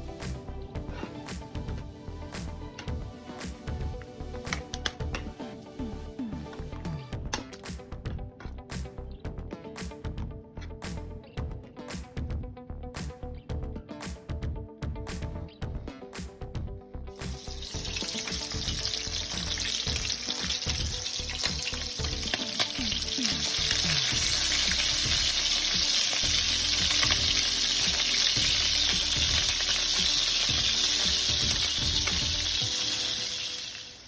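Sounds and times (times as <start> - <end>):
music: 0.0 - 34.0
ham sizzling in a pan: 17.2 - 34.0.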